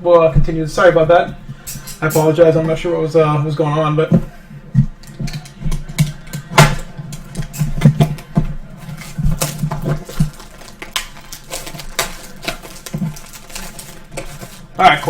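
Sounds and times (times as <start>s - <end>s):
small hard items clattering on table: 5.0s - 15.0s.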